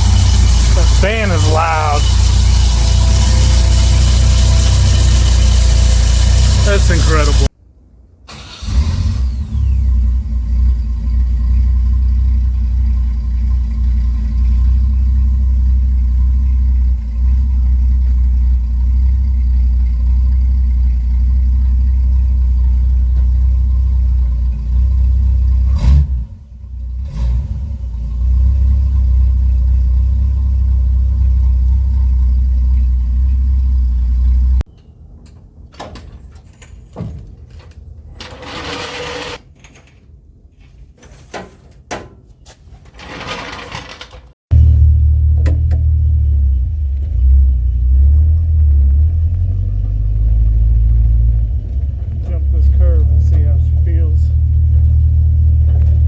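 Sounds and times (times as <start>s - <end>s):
car engine idling: 0.0s - 7.5s, 9.5s - 27.0s, 27.7s - 34.7s, 44.5s - 56.0s.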